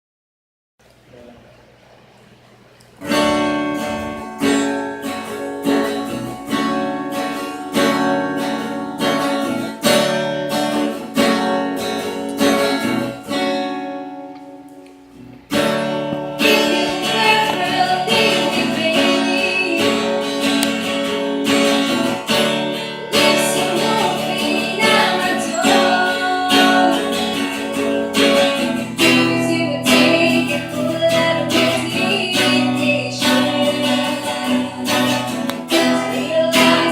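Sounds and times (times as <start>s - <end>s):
acoustic guitar strummed: 3.0s - 36.9s
person singing: 16.4s - 20.8s, 22.1s - 36.9s.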